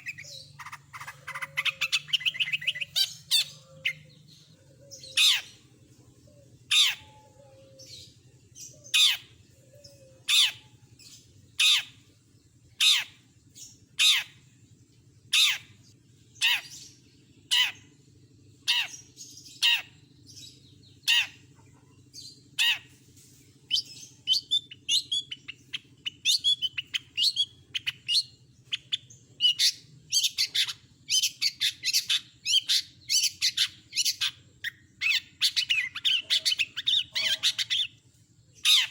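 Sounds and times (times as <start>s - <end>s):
shrike calling harsh squawks: 0.0s - 4.1s
bird chattering song: 0.0s - 38.9s.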